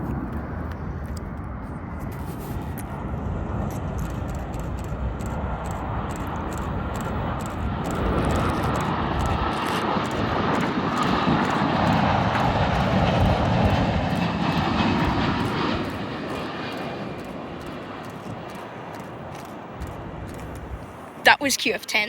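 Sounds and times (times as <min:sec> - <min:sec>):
faint engine whine: 0:00.0 - 0:22.0
jet engines rushing: 0:00.0 - 0:22.0.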